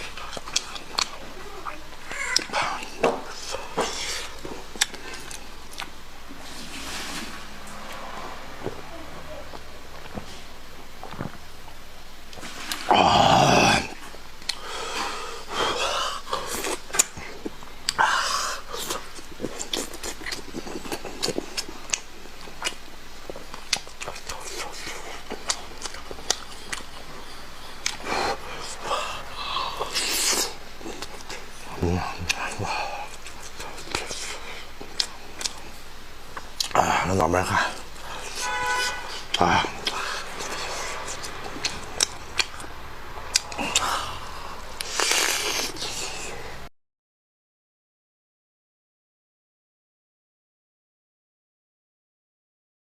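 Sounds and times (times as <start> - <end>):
wet chewing and lip-smacking: 0.0 - 6.8, 14.4 - 15.6, 18.6 - 36.8, 37.4 - 46.5.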